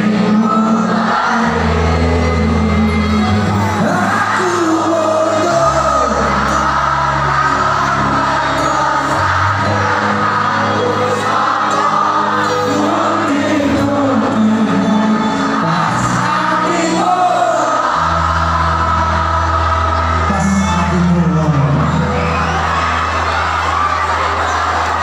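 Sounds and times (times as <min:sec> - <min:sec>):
live band playing pop song: 0:00.0 - 0:18.5
person singing: 0:00.0 - 0:22.2
crowd noise: 0:00.0 - 0:25.0.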